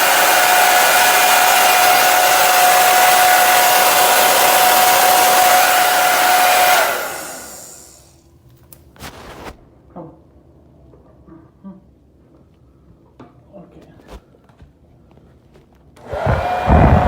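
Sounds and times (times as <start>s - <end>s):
hair dryer blowing: 0.0s - 8.0s, 16.0s - 17.0s
hair dryer motor winding down: 0.0s - 8.0s, 16.0s - 17.0s.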